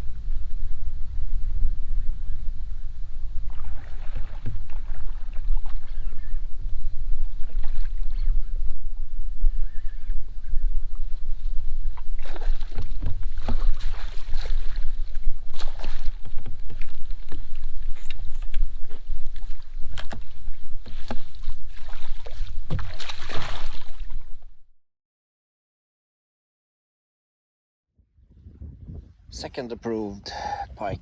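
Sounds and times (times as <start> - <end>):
wind rumbling on microphone: 0.0 - 24.6, 28.0 - 31.0.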